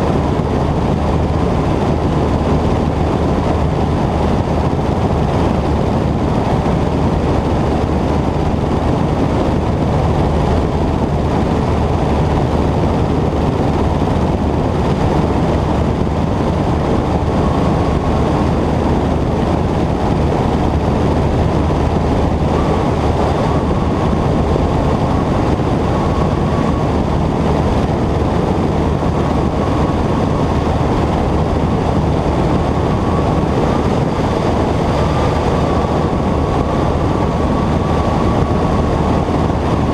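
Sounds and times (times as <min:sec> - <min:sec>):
light airplane engine drone: 0:00.0 - 0:39.9.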